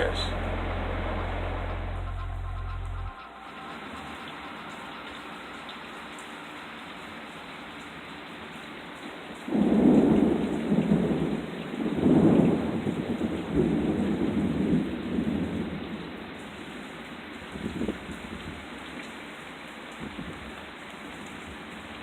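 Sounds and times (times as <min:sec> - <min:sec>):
steady rain: 0:00.0 - 0:22.0
rolling thunderclap: 0:09.5 - 0:15.9.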